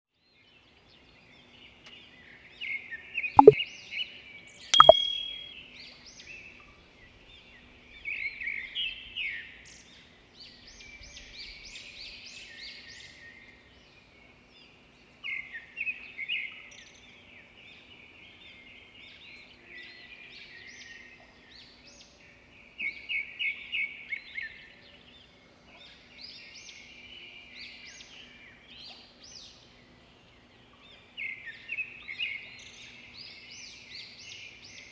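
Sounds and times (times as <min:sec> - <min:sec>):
sharp clicks: 0:04.8 - 0:05.4.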